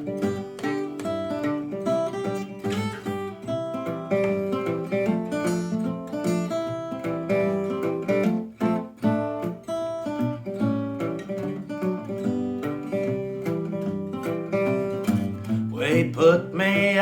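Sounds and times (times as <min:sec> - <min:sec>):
fingerstyle acoustic guitar: 0:00.0 - 0:17.0.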